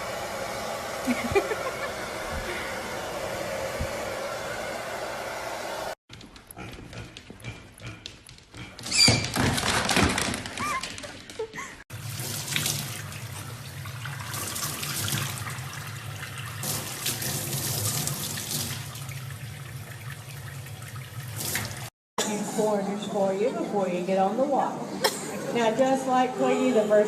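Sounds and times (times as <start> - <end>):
tap water running into sink: 12.0 - 21.9.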